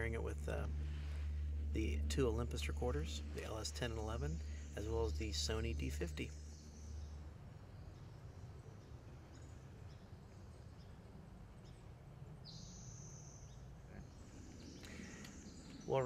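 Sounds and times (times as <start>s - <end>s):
low rumble: 0.0s - 9.8s
bird chirps: 0.0s - 16.0s.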